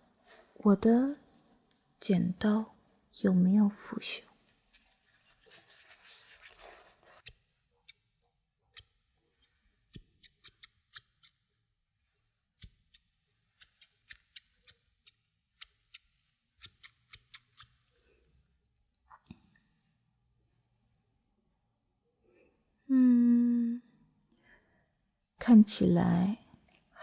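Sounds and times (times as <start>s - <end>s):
soft rustling: 4.2s - 7.3s
scissors snipping: 8.7s - 11.4s, 13.6s - 17.8s.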